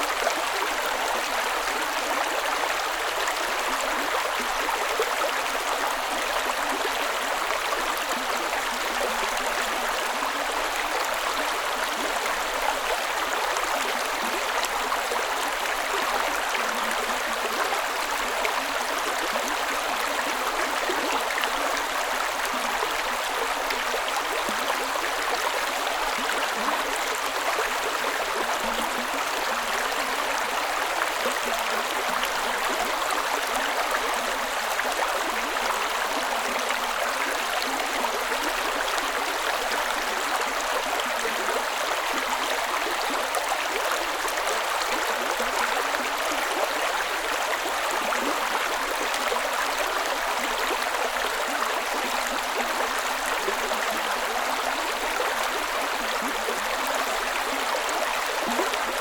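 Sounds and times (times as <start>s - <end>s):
creek water flowing: 0.0s - 59.0s.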